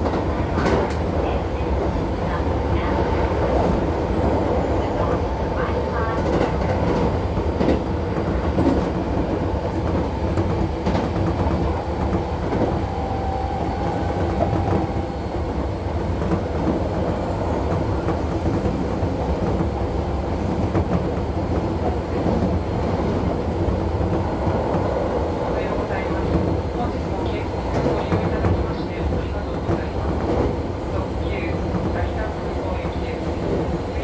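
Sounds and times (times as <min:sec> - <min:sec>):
rail-joint clicks: 0:00.0 - 0:01.1
train wheels rumbling on rail: 0:00.0 - 0:34.0.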